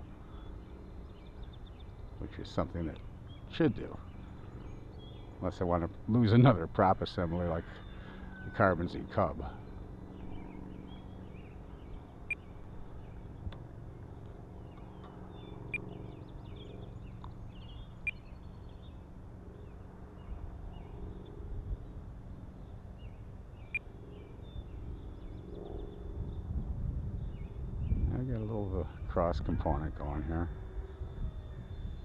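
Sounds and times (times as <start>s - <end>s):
small birds chirping: 0.0s - 6.7s, 8.9s - 26.5s
faint steady hum: 0.0s - 32.0s
low wind rumble: 0.0s - 32.0s.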